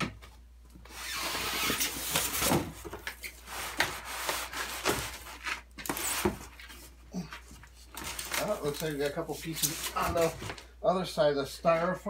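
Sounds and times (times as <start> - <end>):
styrofoam rubbing and squeaking: 0.8 - 6.9, 7.8 - 10.4.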